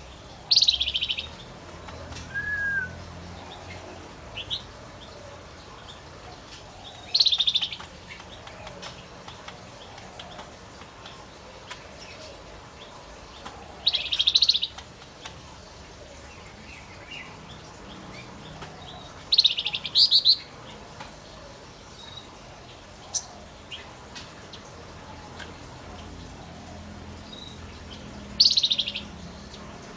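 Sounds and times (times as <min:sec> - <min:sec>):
bird singing high trills: 0:02.3 - 0:03.0.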